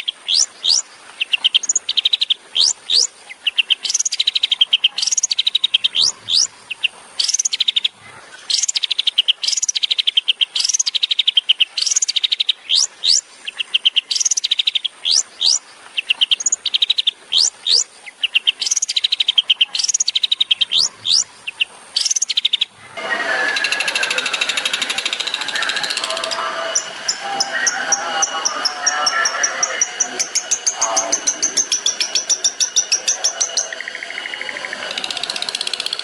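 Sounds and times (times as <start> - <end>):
bird whistles and rattling trills: 8.5 - 22.7, 23.5 - 36.0.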